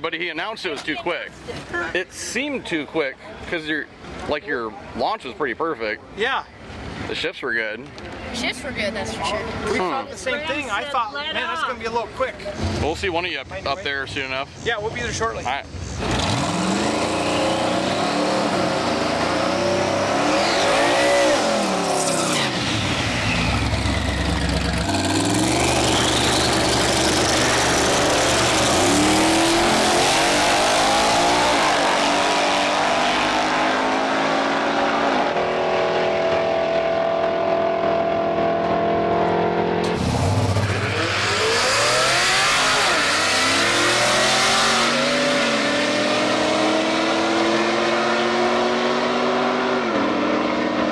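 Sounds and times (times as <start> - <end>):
drag racing engines revving: 12.4 - 50.9.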